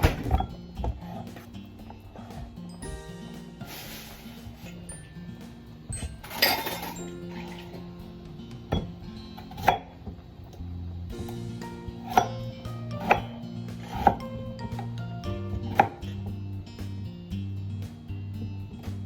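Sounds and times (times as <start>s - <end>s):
soft background music: 0.0s - 19.0s
knife chopping on cutting board: 8.7s - 10.2s, 11.9s - 16.3s.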